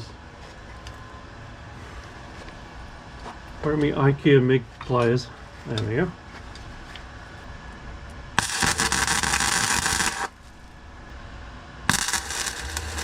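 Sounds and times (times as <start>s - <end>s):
welder arc crackling: 8.4s - 11.1s, 11.9s - 13.0s.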